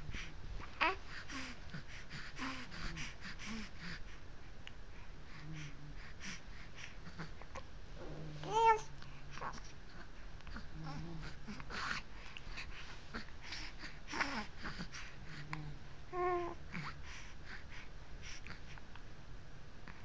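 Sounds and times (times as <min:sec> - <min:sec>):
baby babbling and cooing: 0:00.6 - 0:01.6, 0:07.0 - 0:12.0, 0:16.1 - 0:17.0.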